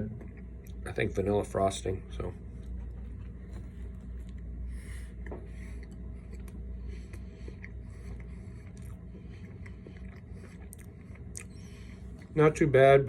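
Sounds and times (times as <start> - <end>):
low background hum: 0.0 - 13.0
quiet chewing: 2.5 - 12.4.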